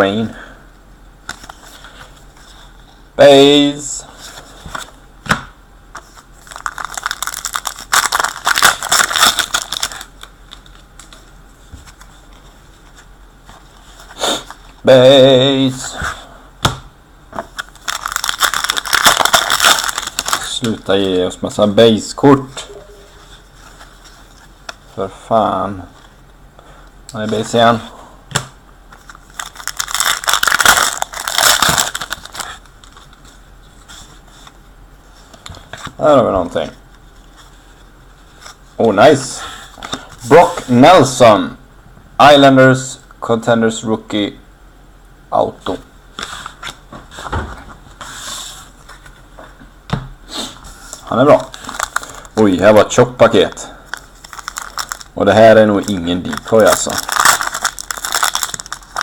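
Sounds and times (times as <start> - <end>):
trading cards rustling and flicking: 5.9 - 14.1, 17.5 - 21.1, 28.9 - 33.4, 55.7 - 59.0
plastic wrapper crinkling and tearing: 6.0 - 11.2, 17.5 - 20.9, 29.0 - 33.2, 50.9 - 59.0.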